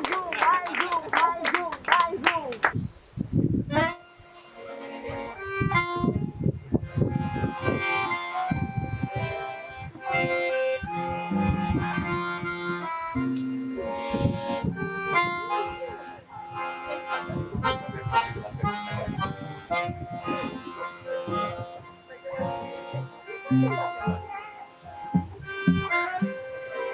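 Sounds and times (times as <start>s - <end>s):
accordion chords and melody: 0.0s - 2.9s, 3.6s - 26.9s
plucked guitar: 16.5s - 26.3s.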